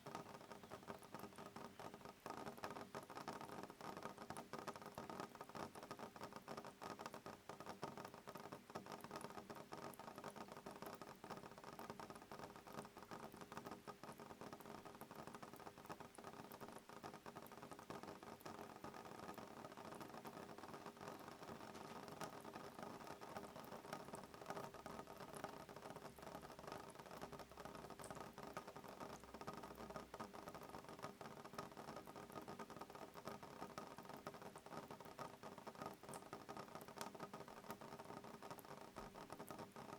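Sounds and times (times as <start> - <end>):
soft rain on a window: 0.0 - 39.9.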